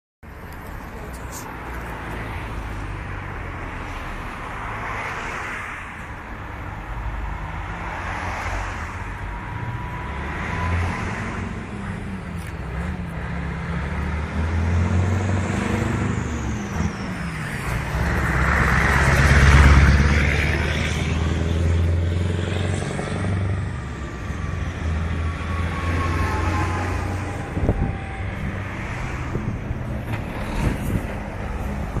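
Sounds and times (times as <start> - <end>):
diesel truck engine under load: 9.5 - 32.0.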